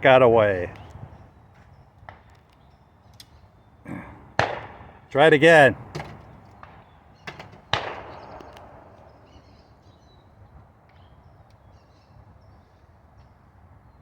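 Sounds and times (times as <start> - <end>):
shotgun shot echoing: 4.4 - 4.9, 5.6 - 9.4
small birds chirping faintly: 5.0 - 14.0.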